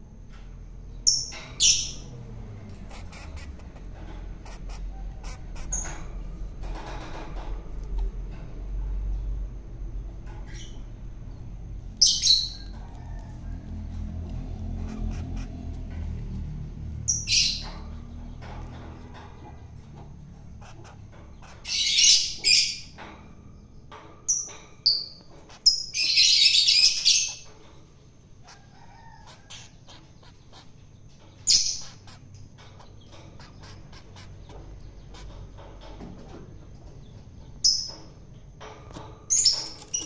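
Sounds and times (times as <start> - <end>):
low rumble: 7.4 - 20.5.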